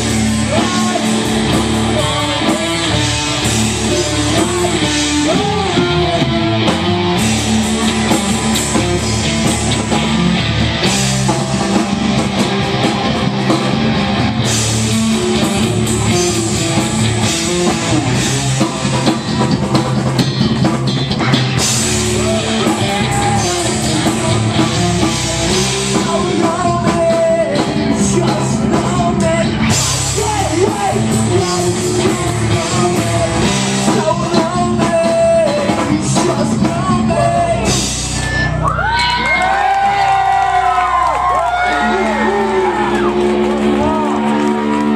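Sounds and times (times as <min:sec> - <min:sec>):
person singing: 0:00.0 - 0:10.2, 0:21.2 - 0:38.0
bass guitar: 0:00.0 - 0:44.9
drum kit: 0:00.0 - 0:44.9
electric guitar: 0:00.0 - 0:44.9.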